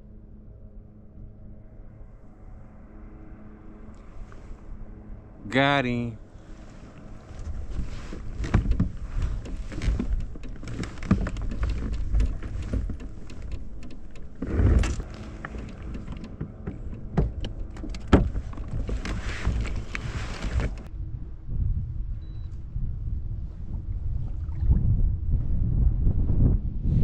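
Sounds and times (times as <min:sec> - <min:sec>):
wind rumbling on microphone: 0:06.2 - 0:27.0
handling knocks and rattles: 0:07.0 - 0:20.9.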